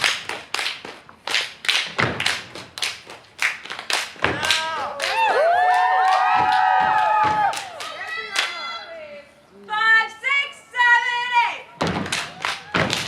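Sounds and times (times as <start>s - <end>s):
hand claps: 0.0s - 8.6s, 12.0s - 13.0s
dancers stomping: 4.2s - 7.6s, 11.8s - 13.0s
audience whooping and cheering: 4.4s - 8.9s.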